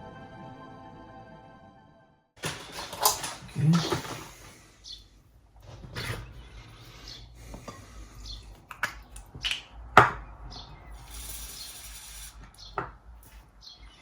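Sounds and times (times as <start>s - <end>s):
tools clicking and knocking: 2.4s - 4.2s
short hiss: 11.0s - 12.4s.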